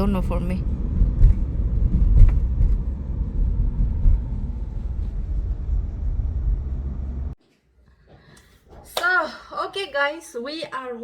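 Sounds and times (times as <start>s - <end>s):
vehicle rumble from inside: 0.0s - 7.4s.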